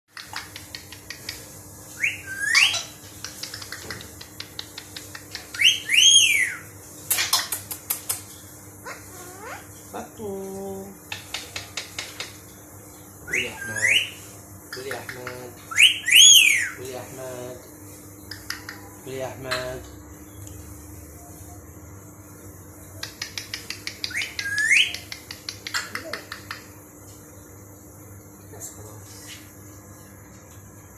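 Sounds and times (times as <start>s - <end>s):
bird chirping: 0.2s - 7.7s, 13.0s - 17.0s, 22.9s - 26.7s
bird whistling: 2.0s - 3.0s, 5.6s - 6.6s, 13.3s - 14.2s, 15.7s - 16.8s, 24.0s - 26.0s
quick light clicks and taps: 7.1s - 8.3s
bird squawking: 13.3s - 14.2s, 14.8s - 16.8s.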